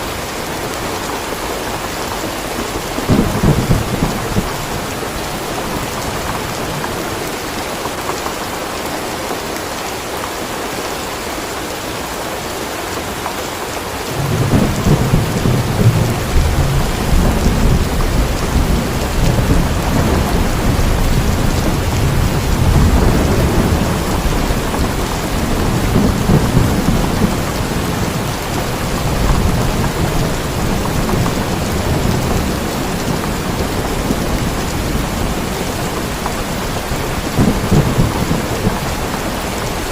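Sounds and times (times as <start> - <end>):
steady rain: 0.0 - 39.9
thunder rumbling: 2.4 - 7.2, 14.1 - 39.9.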